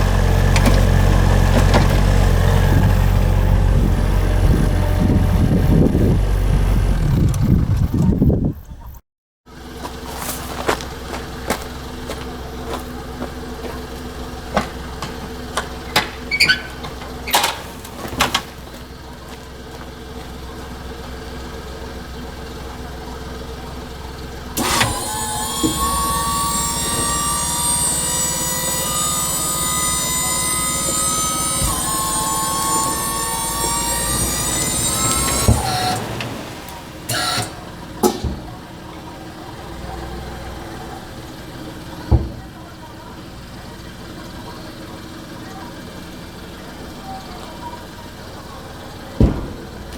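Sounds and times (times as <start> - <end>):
knocks and clanks: 0.0 - 6.2, 14.6 - 18.6, 24.6 - 36.5, 49.2 - 49.9
hydraulic whine rising in pitch: 0.0 - 8.0, 24.6 - 37.7
small earth-moving machine engine: 0.0 - 8.8, 9.5 - 49.9.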